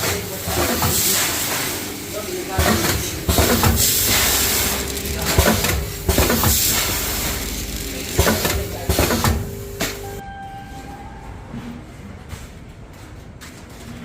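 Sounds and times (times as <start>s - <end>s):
machinery hissing with held tone: 0.2s - 10.2s.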